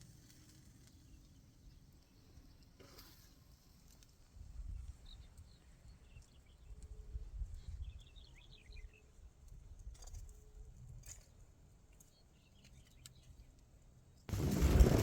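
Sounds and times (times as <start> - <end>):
small birds chirping: 12.0 - 13.6
low wind rumble: 14.3 - 15.0
wind noise hitting microphone: 14.3 - 15.0.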